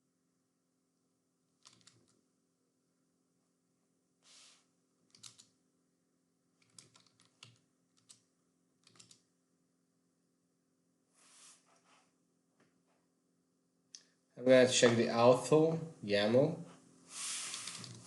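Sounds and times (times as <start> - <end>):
low electrical hum: 0.0 - 18.0
keyboard typing: 1.6 - 2.2, 5.1 - 5.5, 6.6 - 9.3.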